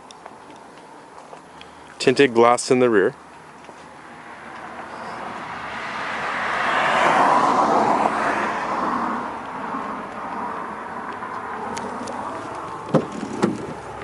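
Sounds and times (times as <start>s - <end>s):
passing vehicle rush: 3.4s - 14.0s.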